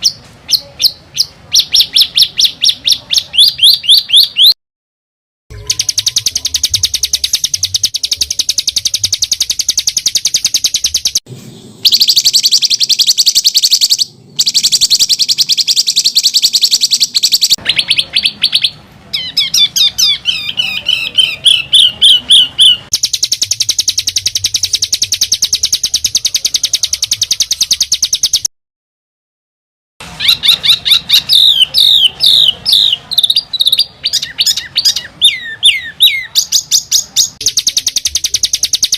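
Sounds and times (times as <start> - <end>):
songbird rattling trill: 5.5 - 11.2, 11.9 - 18.7, 19.4 - 28.5, 30.2 - 38.9.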